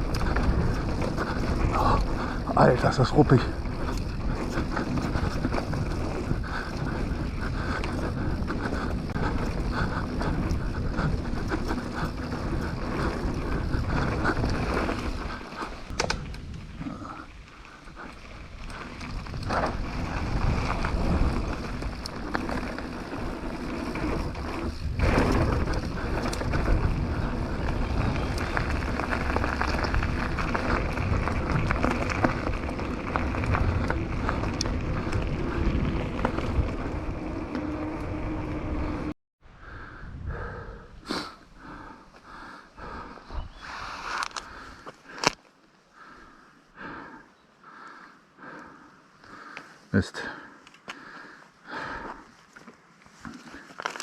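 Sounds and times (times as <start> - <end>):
bike rattling and knocking: 0.0 - 16.6, 18.6 - 39.1
tyres rolling over roots and stones: 0.0 - 39.1, 50.7 - 54.0.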